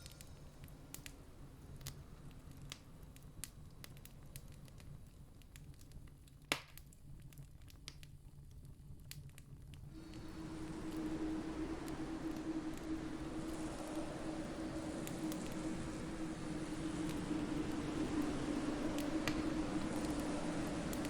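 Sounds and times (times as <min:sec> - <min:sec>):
campfire crackling: 0:09.7 - 0:21.0
steady low rumble: 0:09.9 - 0:21.0.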